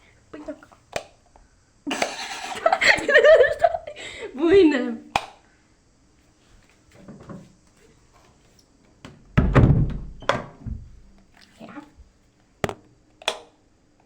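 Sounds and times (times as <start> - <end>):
loud dull thump: 9.4 - 11.0.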